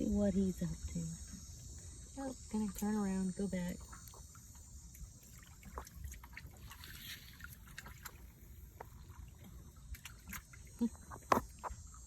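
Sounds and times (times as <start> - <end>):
lake water lapping: 0.0 - 12.0
small clicks and splashes: 2.4 - 12.0.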